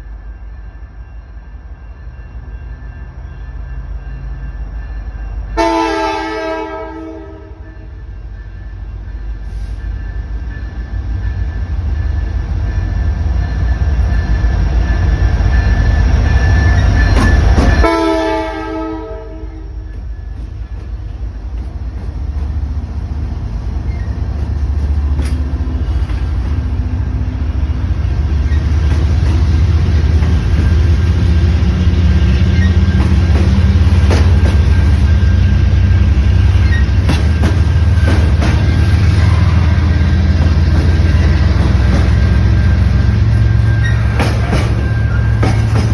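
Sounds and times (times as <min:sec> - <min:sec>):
freight train rumbling: 0:00.0 - 0:45.9
train horn: 0:05.6 - 0:08.0, 0:17.6 - 0:19.9.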